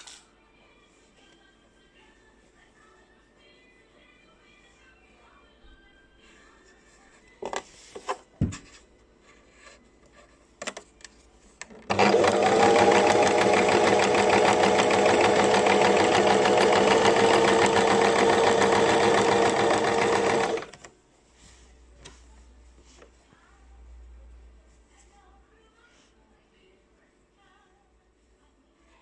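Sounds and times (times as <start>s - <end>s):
electric sewing machine stitching: 11.9s - 20.8s.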